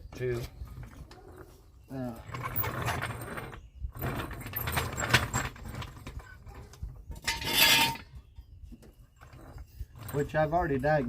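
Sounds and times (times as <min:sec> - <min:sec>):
metallic clinking and rustling: 0:00.2 - 0:11.0.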